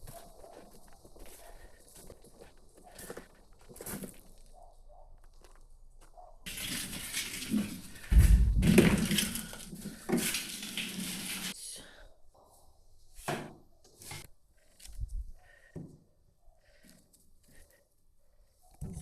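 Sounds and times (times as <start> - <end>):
heavy thump: 8.1 - 9.0.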